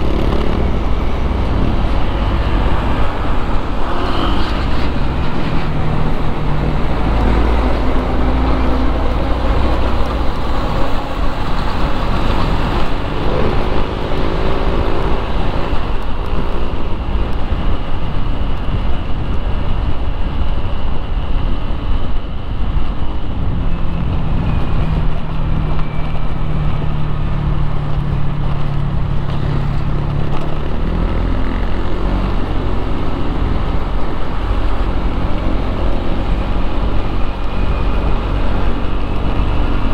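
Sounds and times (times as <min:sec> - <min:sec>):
heavy low engine rumble: 0:00.0 - 0:39.9
road traffic passing: 0:00.0 - 0:39.9
steady engine hum: 0:00.0 - 0:39.9
tyre and road noise: 0:00.0 - 0:39.9.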